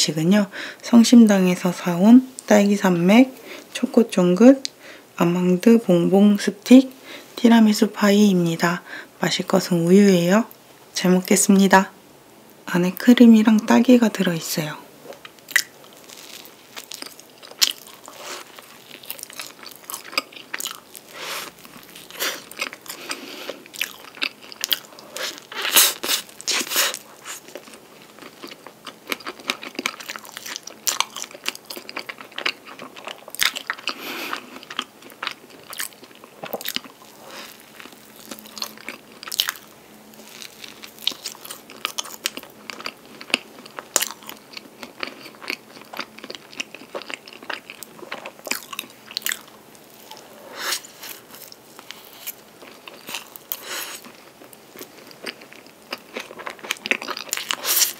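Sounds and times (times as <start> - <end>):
crunching pastry bites: 15.3 - 34.0, 34.6 - 50.2.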